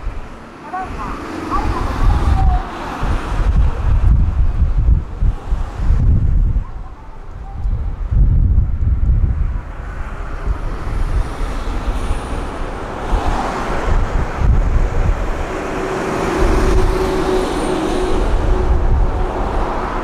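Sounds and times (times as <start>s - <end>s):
electric train running past: 0.0s - 4.1s, 9.5s - 20.0s.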